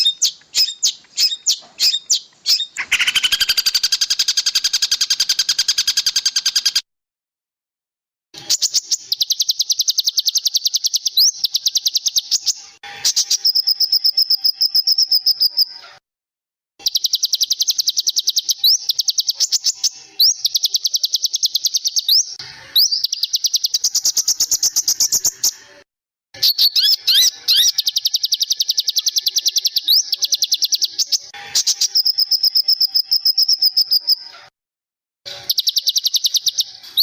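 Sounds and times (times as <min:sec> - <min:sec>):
rising bird whistles: 0:00.0 - 0:06.8, 0:26.4 - 0:34.3
songbird singing rapid trills: 0:00.0 - 0:06.8, 0:08.5 - 0:12.6, 0:26.4 - 0:34.2, 0:35.5 - 0:36.7.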